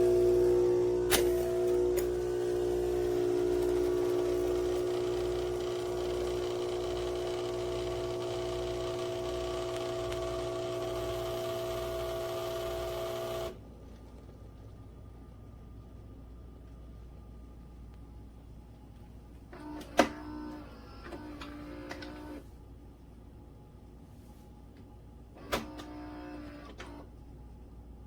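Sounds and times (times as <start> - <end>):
espresso machine humming: 0.0 - 13.6.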